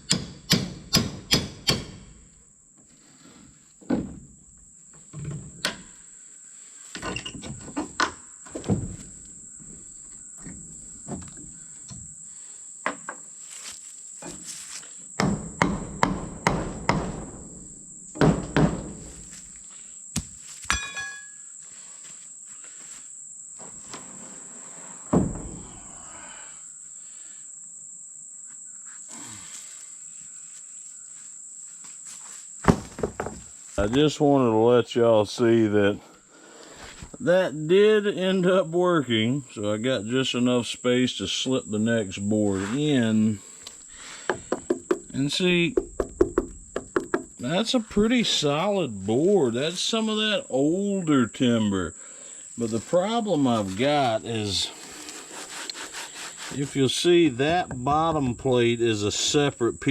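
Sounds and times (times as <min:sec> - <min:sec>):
hammer blows on wooden boards: 0:00.0 - 0:02.1, 0:15.2 - 0:17.4, 0:18.1 - 0:19.2, 0:44.0 - 0:47.6
insect chirring: 0:04.2 - 0:59.9.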